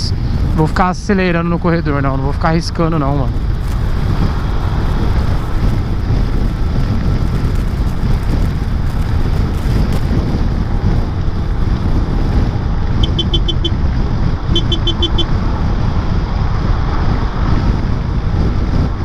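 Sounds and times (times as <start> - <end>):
scooter engine rumbling: 0.0 - 15.9
wind buffeting microphone: 0.0 - 19.0
short high beeps: 13.0 - 13.7, 14.5 - 15.3.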